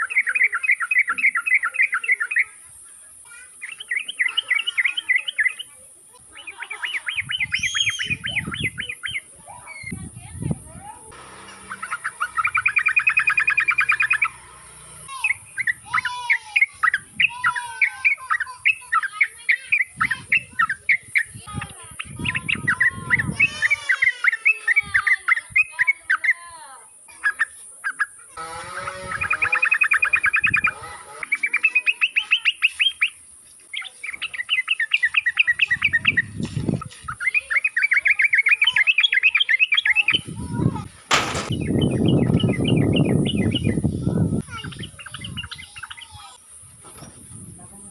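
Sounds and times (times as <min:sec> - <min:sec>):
bird chattering trills: 0:00.0 - 0:46.4
short whistled bird notes: 0:06.8 - 0:10.0.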